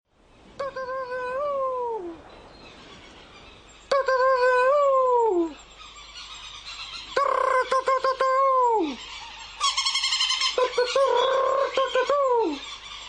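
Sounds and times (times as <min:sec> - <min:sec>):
long human calls: 0:00.6 - 0:02.3, 0:03.9 - 0:05.7, 0:07.0 - 0:13.0.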